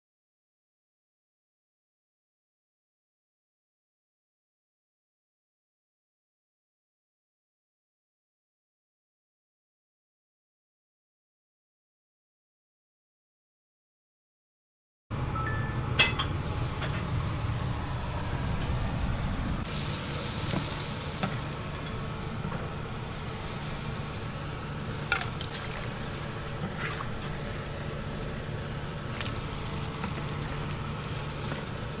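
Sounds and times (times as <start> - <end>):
low rumble: 15.1 - 32.0
food sizzling: 15.8 - 32.0.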